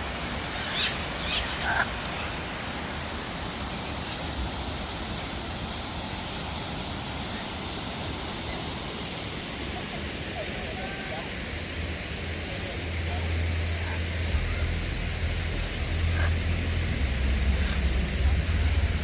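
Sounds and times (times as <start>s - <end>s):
falling water rushing: 0.0s - 19.0s.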